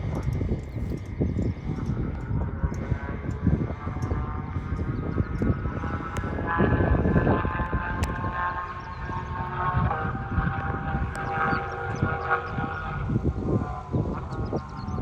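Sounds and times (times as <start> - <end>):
low rumbling: 0.0 - 15.0
sports car engine revving high: 5.8 - 15.0.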